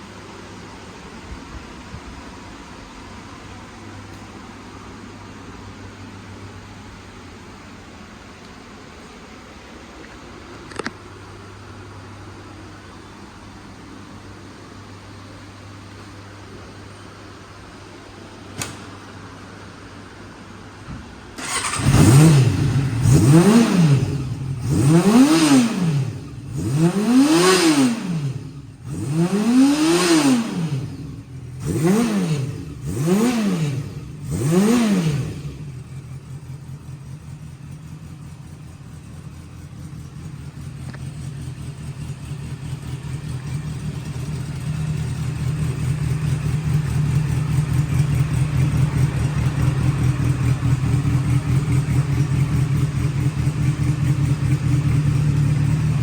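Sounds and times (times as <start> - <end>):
motorcycle engine revving and idling: 21.4 - 56.0.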